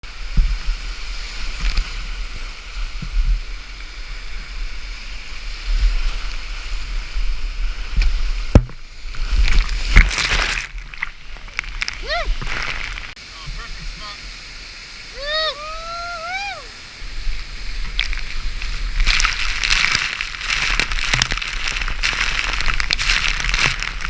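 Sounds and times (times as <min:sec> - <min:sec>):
rushing creek whitewater: 0:00.0 - 0:24.0
loud water splashing: 0:00.1 - 0:24.0
low thumps and knocks: 0:07.9 - 0:13.6.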